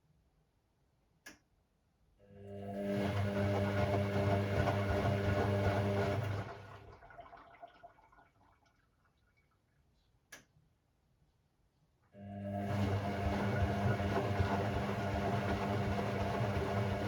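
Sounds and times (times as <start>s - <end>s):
washing machine humming: 2.4s - 8.6s, 12.2s - 17.0s.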